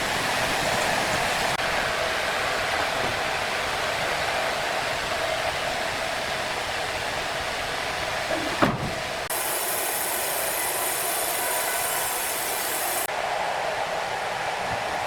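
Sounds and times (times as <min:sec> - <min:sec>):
hissing machinery noise: 0:08.1 - 0:13.4
thump: 0:08.4 - 0:09.0.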